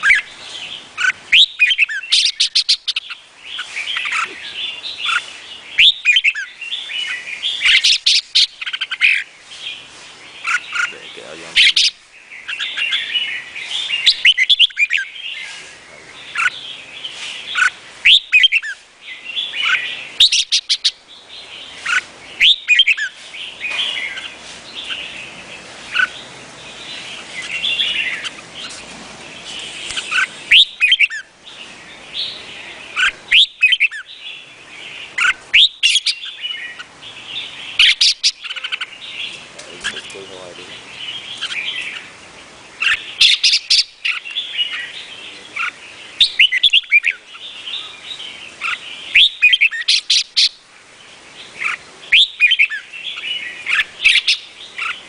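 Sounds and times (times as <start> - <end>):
high chirping: 0.0 - 55.0
bird singing whistled phrases: 1.0 - 9.2, 17.5 - 18.8, 21.9 - 23.1, 29.9 - 31.3, 33.0 - 34.1, 35.2 - 36.8, 45.6 - 47.2, 48.6 - 50.5, 51.6 - 55.0.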